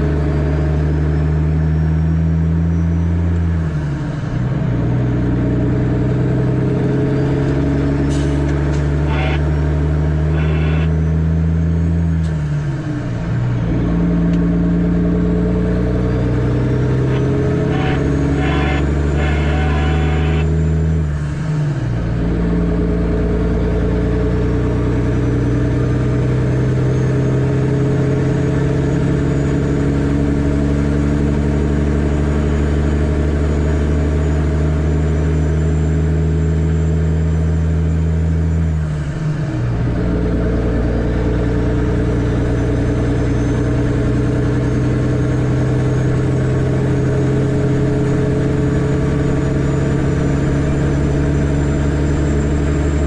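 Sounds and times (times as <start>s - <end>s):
diesel truck engine droning: 0.0s - 53.0s.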